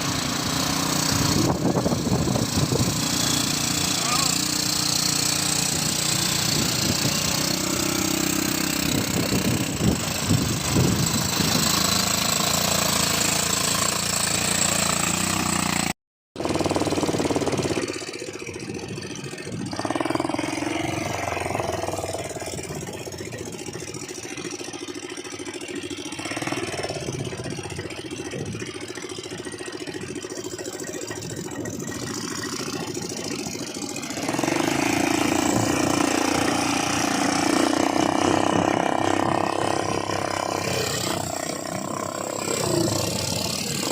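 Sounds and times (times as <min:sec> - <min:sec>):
quad bike engine running: 0:00.0 - 0:43.9.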